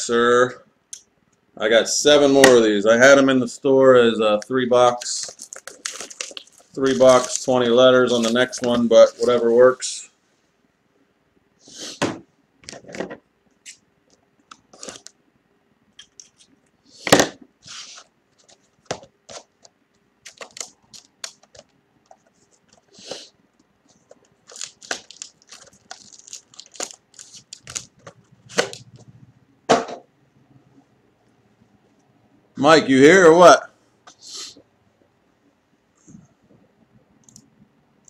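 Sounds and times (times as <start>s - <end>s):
packaging tearing and crinkling: 5.2s - 8.6s, 20.2s - 21.7s, 23.9s - 28.8s.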